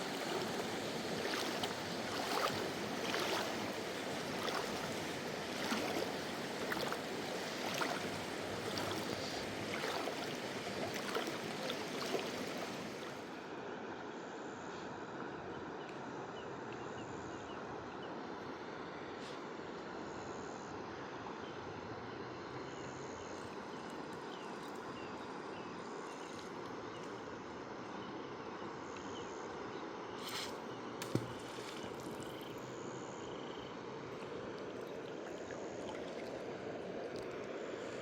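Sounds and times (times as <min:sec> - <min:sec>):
river water rushing: 0:00.0 - 0:13.3.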